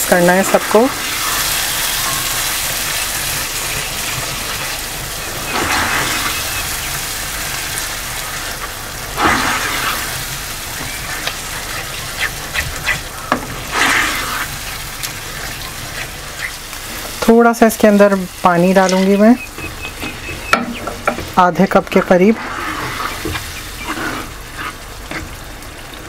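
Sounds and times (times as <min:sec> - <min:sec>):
gravy sizzling in hot oil: 0:00.0 - 0:26.0
spatula scraping pan: 0:22.0 - 0:25.4.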